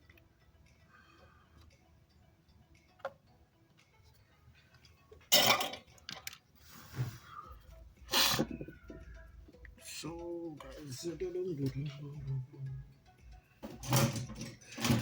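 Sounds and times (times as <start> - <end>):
soft breathy sound: 6.6 - 9.4.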